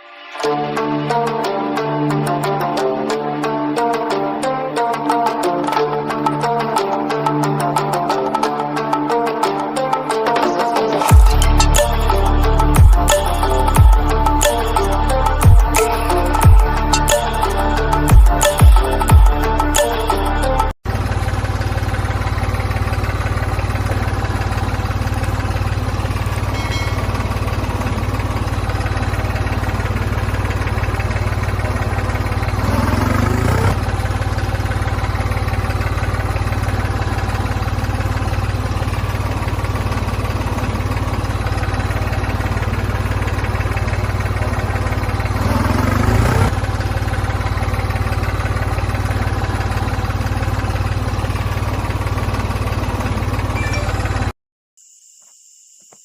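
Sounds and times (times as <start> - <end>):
low engine-like hum: 11.1 - 54.3.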